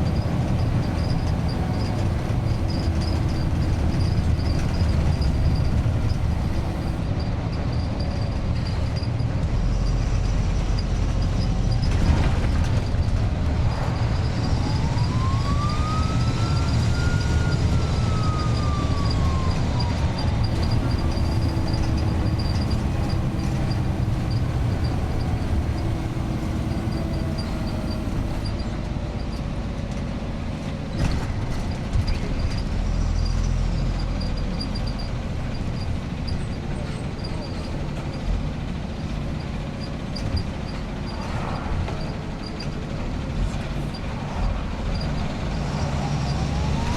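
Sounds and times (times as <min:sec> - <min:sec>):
bus diesel engine rumbling: 0:00.0 - 0:46.9
turbocharger whine: 0:12.2 - 0:28.6.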